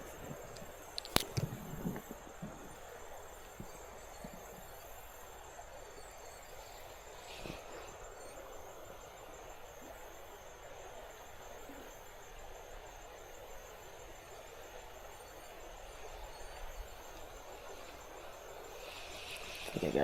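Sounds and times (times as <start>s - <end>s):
faint rustle: 0.0s - 5.4s, 6.0s - 8.8s, 15.8s - 20.0s
high insect drone: 0.0s - 20.0s.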